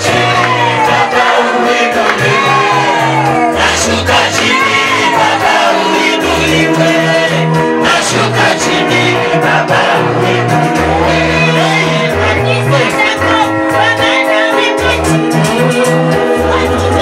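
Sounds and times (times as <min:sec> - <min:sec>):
people shouting: 0:00.0 - 0:06.2
bass line: 0:00.0 - 0:17.0
people singing: 0:00.0 - 0:17.0.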